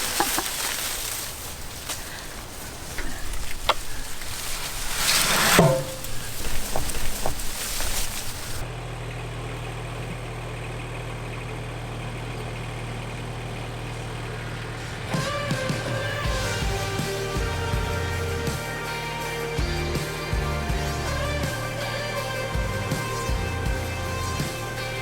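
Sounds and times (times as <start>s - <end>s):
tractor engine humming: 0.0s - 25.0s
music: 15.1s - 25.0s.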